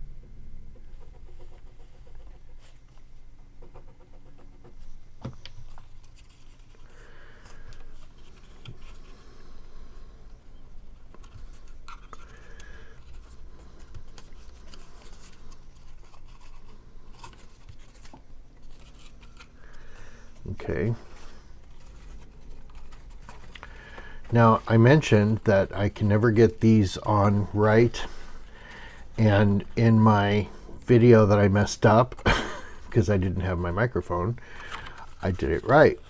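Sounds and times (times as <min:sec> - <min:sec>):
faint low hum: 0:00.0 - 0:36.0
paper rustling and scraping: 0:05.6 - 0:09.2, 0:11.0 - 0:36.0.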